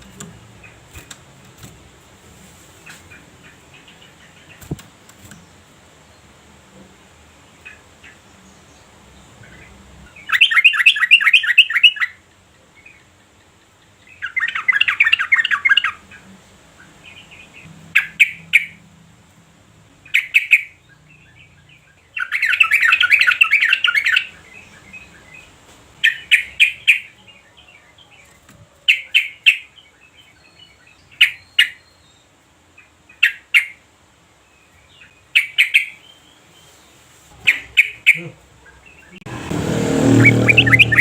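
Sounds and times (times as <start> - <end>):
bird sharp notes: 39.2 - 41.0.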